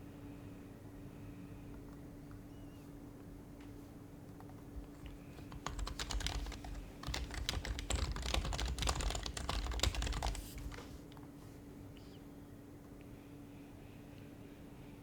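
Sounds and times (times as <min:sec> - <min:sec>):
keyboard typing: 0:04.4 - 0:11.2.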